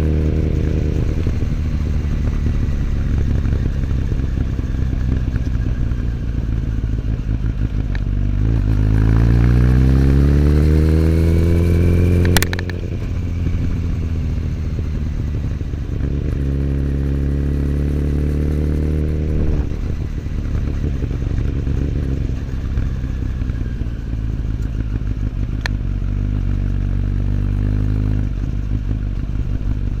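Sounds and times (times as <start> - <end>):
motorcycle engine revving: 0.0 - 30.0
sharp click: 12.2 - 12.8.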